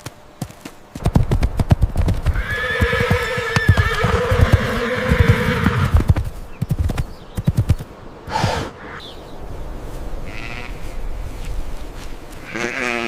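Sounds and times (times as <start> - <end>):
clip-clopping hoofbeats: 0.0 - 7.9
horse neighing: 2.4 - 6.0.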